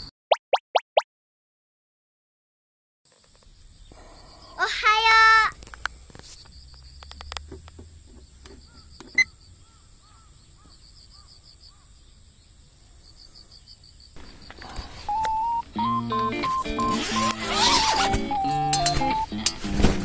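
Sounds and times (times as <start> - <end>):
crickets chirping: 3.1 - 19.4
small clicks and knocks: 5.6 - 9.2.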